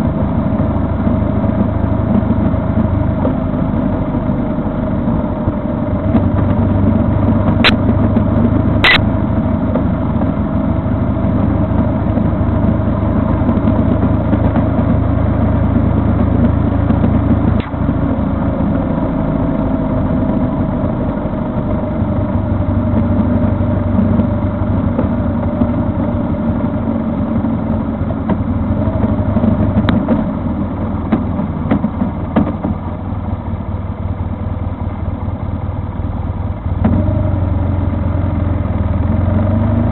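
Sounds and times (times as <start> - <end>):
vehicle engine running: 0.0 - 39.9
sharp clicks: 8.8 - 9.0.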